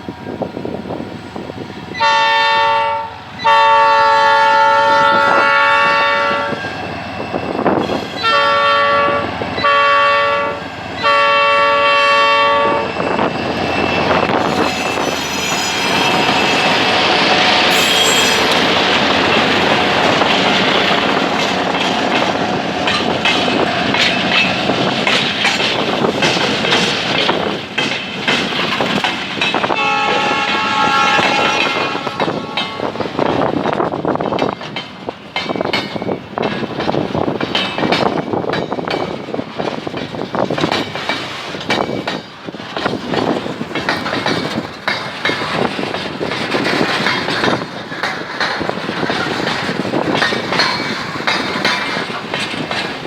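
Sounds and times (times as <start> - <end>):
locomotive horn blasts: 2.0 - 6.6, 8.2 - 13.0, 29.7 - 33.1
high wheel squeal: 12.6 - 19.8
train wheels clattering over rail joints: 13.0 - 53.0.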